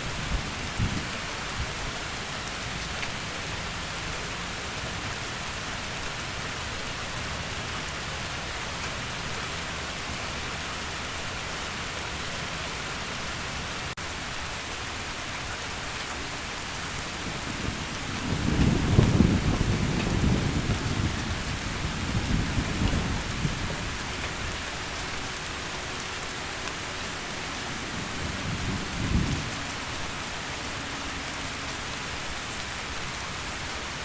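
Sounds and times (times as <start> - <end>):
heavy rain falling: 0.0 - 34.0
low rumble of thunder: 17.2 - 24.6, 28.0 - 29.8.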